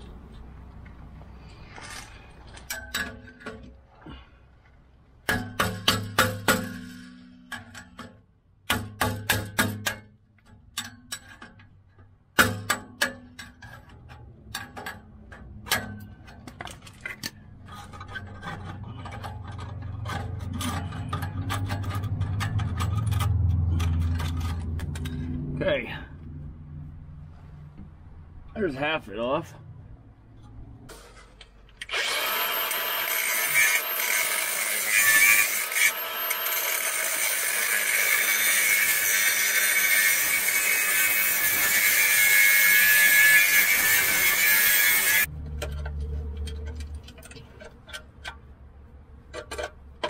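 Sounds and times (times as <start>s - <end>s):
low running tool sound: 31.9s - 45.8s.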